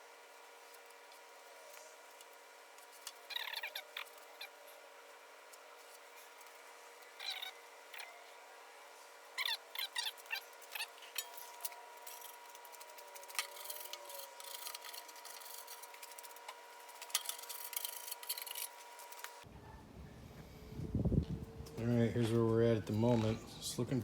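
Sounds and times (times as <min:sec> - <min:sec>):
squeaks: 0:03.2 - 0:04.6, 0:07.2 - 0:08.2
tool scraping body filler: 0:09.8 - 0:19.4.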